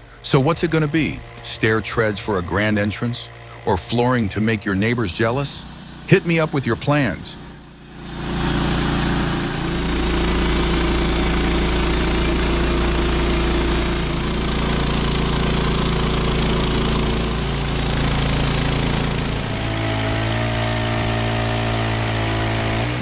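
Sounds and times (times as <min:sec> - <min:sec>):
engine saw cutting a log: 0:00.0 - 0:23.0.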